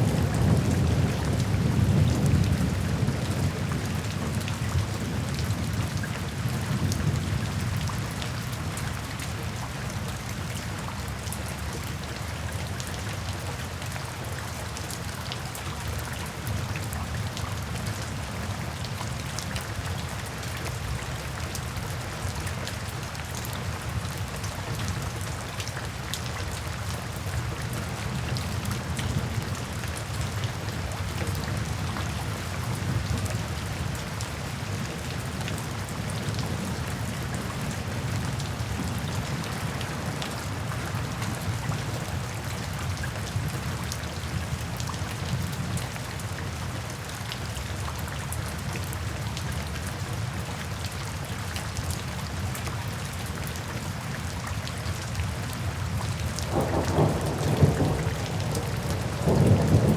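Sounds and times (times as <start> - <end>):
steady rain pattering: 0.0 - 59.9
thunder rumble: 56.5 - 59.9.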